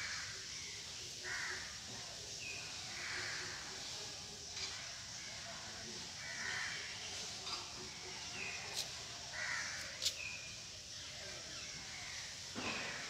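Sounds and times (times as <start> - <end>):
harsh crow-like calls: 1.2 - 1.8, 6.2 - 7.0, 9.3 - 9.9.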